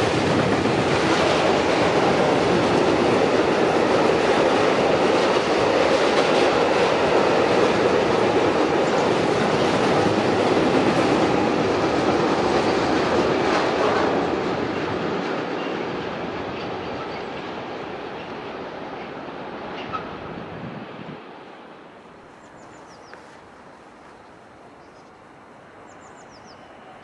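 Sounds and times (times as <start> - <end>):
train wheels running on rails: 0.0 - 20.5.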